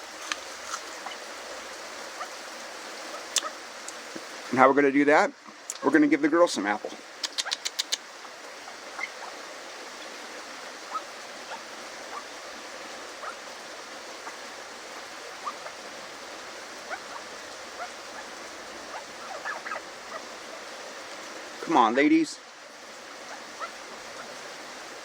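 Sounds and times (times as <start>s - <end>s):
steady rain falling: 0.0s - 25.0s
faint short ticks: 7.2s - 8.1s.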